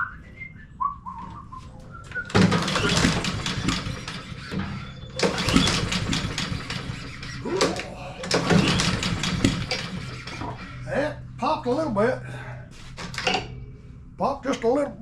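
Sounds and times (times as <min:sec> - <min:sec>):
mower recoil starter pulled: 0:02.3 - 0:10.8.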